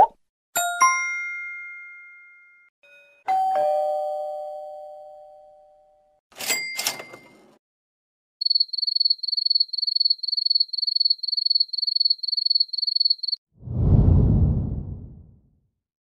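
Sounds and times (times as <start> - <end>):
cricket chirping: 8.4 - 13.4
low whoosh: 13.6 - 15.4.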